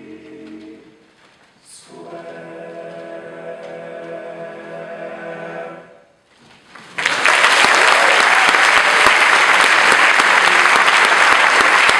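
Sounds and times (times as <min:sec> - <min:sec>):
male a cappella group singing: 0:00.0 - 0:01.0, 0:01.7 - 0:06.1
audience applause: 0:06.7 - 0:11.9.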